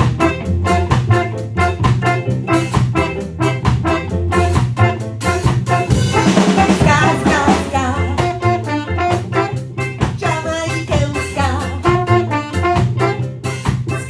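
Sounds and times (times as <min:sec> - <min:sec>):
ska band playing: 0:00.0 - 0:14.0
woman singing: 0:06.3 - 0:08.8, 0:10.2 - 0:12.4.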